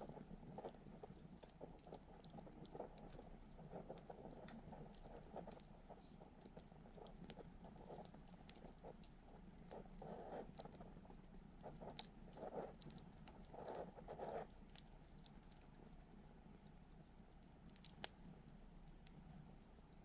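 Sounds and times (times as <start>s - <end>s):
low steady hiss: 0.0s - 20.0s
campfire pops and snaps: 17.6s - 18.2s.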